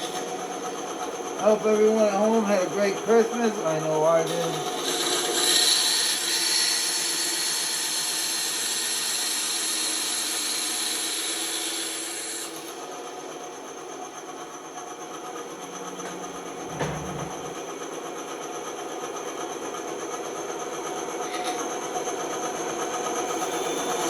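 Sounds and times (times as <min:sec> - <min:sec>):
band saw motor hum: 0:00.0 - 0:24.0
saw blade cutting wood: 0:01.9 - 0:12.8.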